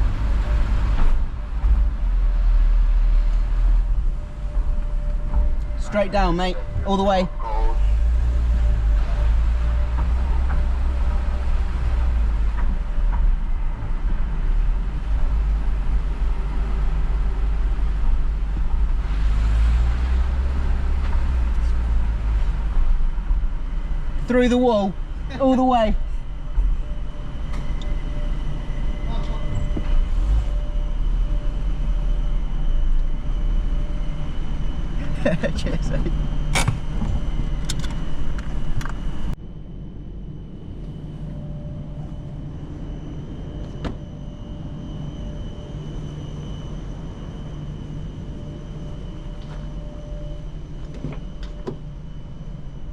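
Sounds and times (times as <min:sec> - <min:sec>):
car driving rumble: 0:00.0 - 0:39.6
faint whining tones: 0:00.0 - 0:52.9.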